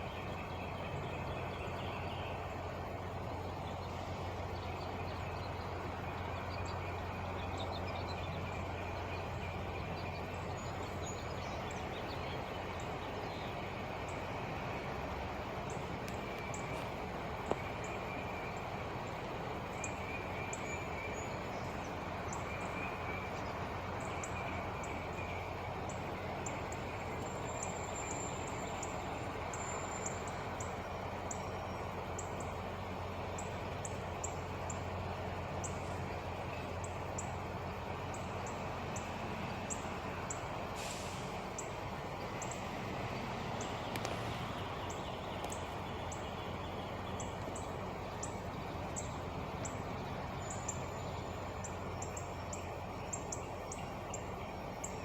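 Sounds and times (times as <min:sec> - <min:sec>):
small birds chirping: 0:00.0 - 0:55.0
truck engine idling: 0:00.0 - 0:55.0.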